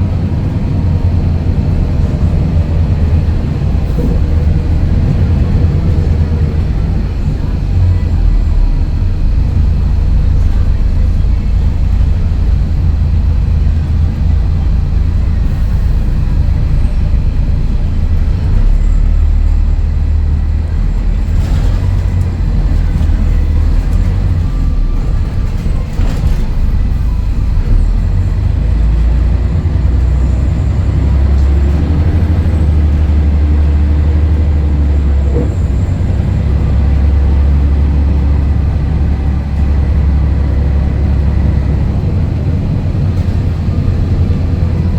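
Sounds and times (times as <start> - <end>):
bus diesel engine drone: 0.0 - 44.9.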